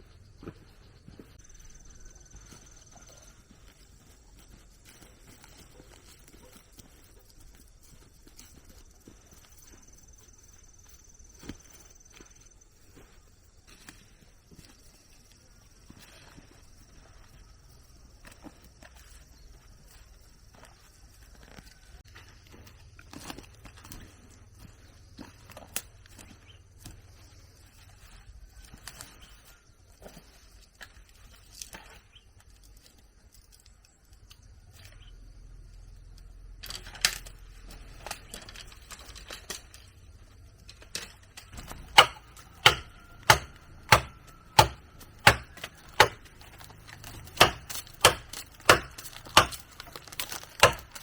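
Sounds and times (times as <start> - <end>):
hand tool chopping strikes: 41.6 - 46.4, 47.0 - 51.0.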